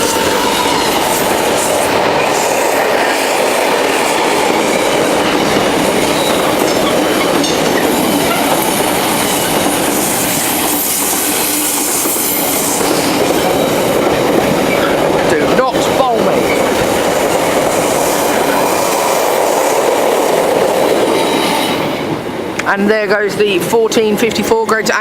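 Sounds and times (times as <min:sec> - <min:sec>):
wagon wheels clattering over rail joints: 0:04.6 - 0:10.0.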